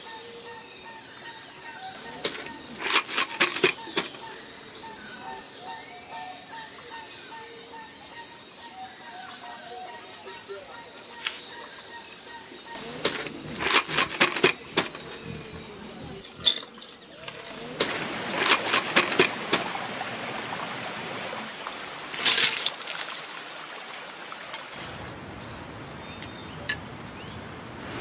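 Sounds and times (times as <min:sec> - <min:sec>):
bones and shells clattering: 0:02.0 - 0:04.2, 0:12.8 - 0:19.7, 0:22.1 - 0:23.6.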